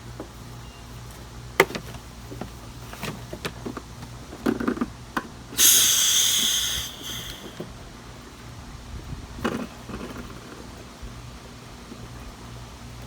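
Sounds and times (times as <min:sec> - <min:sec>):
loud hiss: 0:05.6 - 0:07.7.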